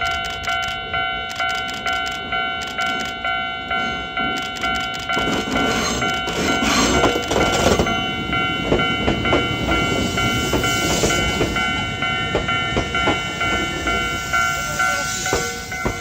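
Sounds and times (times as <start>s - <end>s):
electric train passing: 0.0s - 16.0s
level crossing warning bell: 0.0s - 16.0s
train wheels clacking over rail joints: 4.4s - 16.0s.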